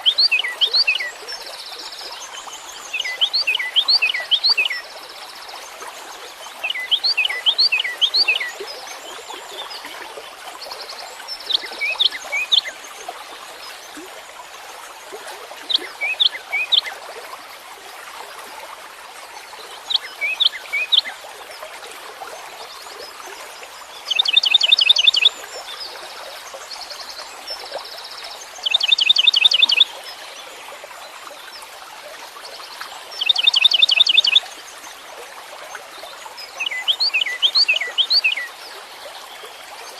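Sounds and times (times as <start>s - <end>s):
songbird singing: 0.0s - 4.9s, 6.6s - 9.8s, 24.0s - 26.0s, 28.0s - 30.4s, 33.2s - 34.5s, 36.4s - 38.6s.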